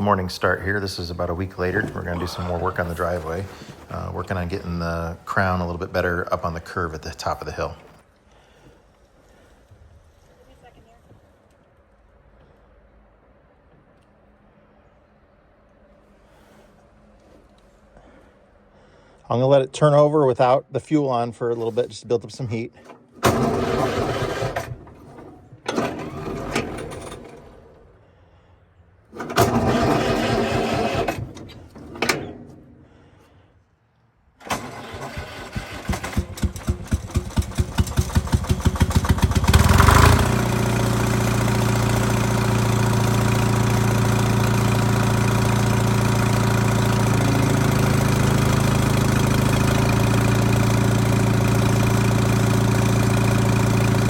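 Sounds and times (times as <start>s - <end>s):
diesel engine idling: 0.0s - 8.6s, 34.6s - 54.0s
diesel engine cranking: 0.0s - 8.7s, 22.7s - 33.5s, 34.4s - 54.0s.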